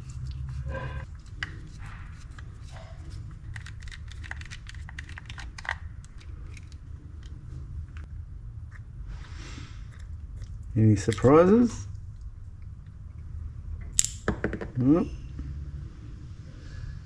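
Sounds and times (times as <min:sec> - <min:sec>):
steady low hum: 0:00.0 - 0:17.0
clicks of small metal parts: 0:14.0 - 0:14.2.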